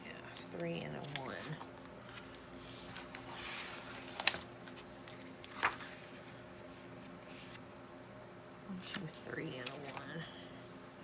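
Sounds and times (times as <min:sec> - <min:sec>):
paper rustling: 0:00.4 - 0:07.7, 0:08.8 - 0:10.9.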